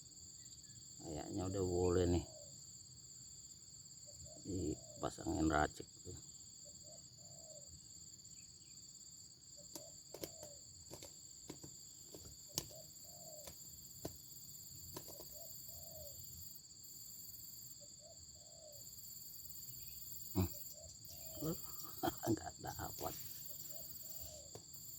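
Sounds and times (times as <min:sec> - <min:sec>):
dove cooing: 0:07.2 - 0:07.7, 0:09.7 - 0:13.6, 0:15.0 - 0:16.3, 0:20.3 - 0:24.6.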